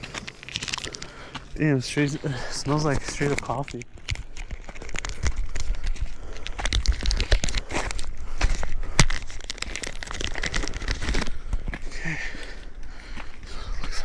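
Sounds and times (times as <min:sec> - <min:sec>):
wrapper crinkling: 0:00.0 - 0:01.3, 0:02.1 - 0:11.4.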